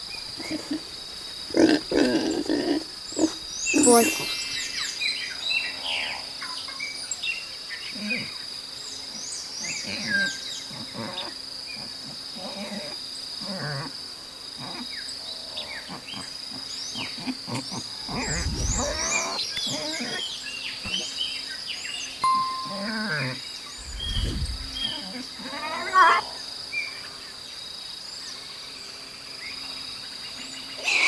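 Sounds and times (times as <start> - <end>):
high-pitched insect drone: 0.0 - 14.0, 14.6 - 27.2
pigs grunting: 0.4 - 0.9, 1.5 - 4.2, 17.0 - 20.2
birds chirping: 3.0 - 7.9, 17.8 - 21.5, 22.1 - 25.1.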